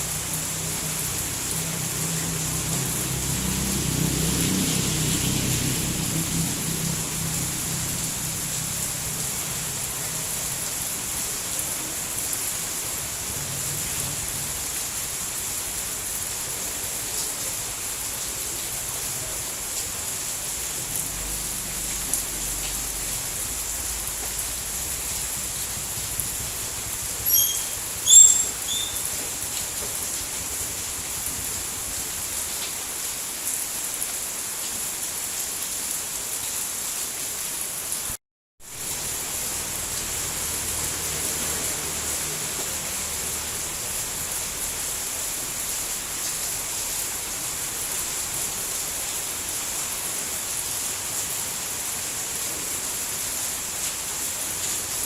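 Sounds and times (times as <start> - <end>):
steady rain: 0.0 - 55.0
short high chirps: 27.2 - 29.1.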